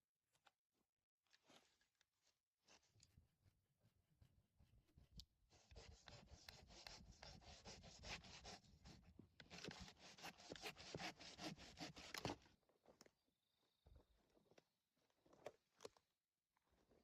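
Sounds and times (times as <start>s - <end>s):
scratching and rubbing of wood: 4.6s - 12.4s.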